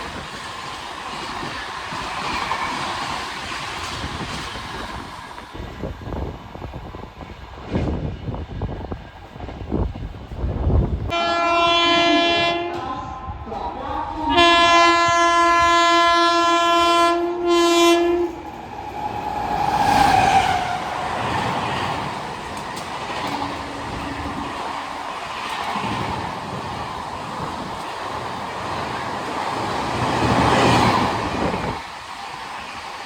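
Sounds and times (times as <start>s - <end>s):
train wheels rumbling on rail: 0.0s - 11.2s, 11.8s - 33.0s
locomotive horn blasts: 11.1s - 13.1s, 14.3s - 18.4s.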